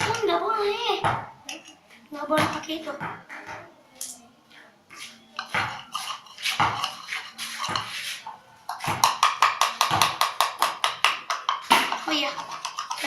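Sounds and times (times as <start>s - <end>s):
spoon scraping a mixing bowl: 5.0s - 13.0s.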